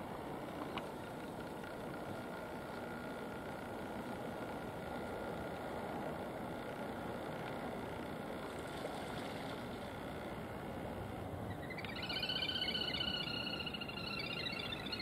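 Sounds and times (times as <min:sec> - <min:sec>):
bird trilling: 0:11.5 - 0:15.0.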